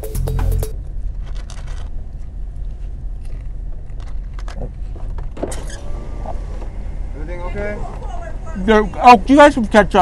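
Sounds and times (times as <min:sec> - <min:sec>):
car engine idling: 0:00.0 - 0:10.0
light clicks and rustles: 0:01.1 - 0:05.4.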